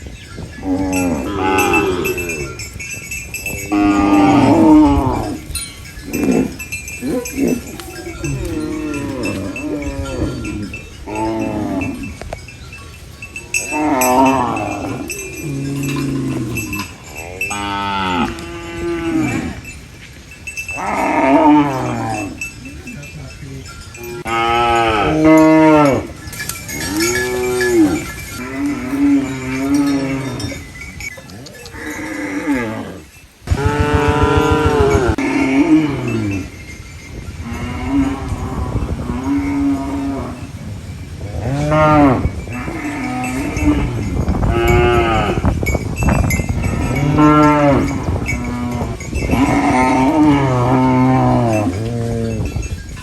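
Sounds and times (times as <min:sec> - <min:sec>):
cattle mooing: 0:00.7 - 0:02.6, 0:06.1 - 0:12.1, 0:31.6 - 0:36.4.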